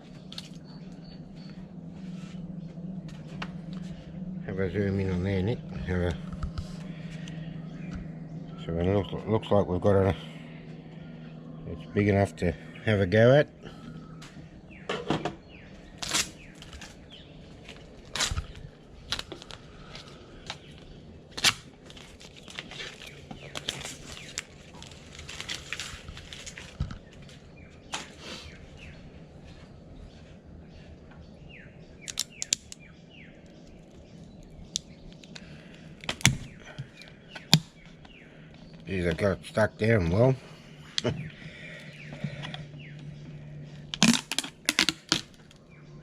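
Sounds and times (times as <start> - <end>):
wooden boxes prised apart: 36.0 - 37.7, 43.9 - 45.6.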